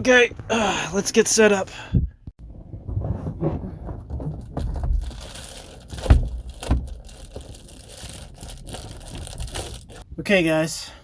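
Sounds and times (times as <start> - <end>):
thumps: 2.4 - 10.0
rustling crinkling gear handling: 3.8 - 10.1.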